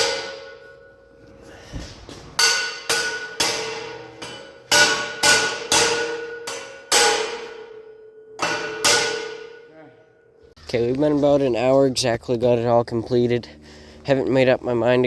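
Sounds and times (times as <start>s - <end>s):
metal clanks on steel tubing: 2.4s - 9.8s.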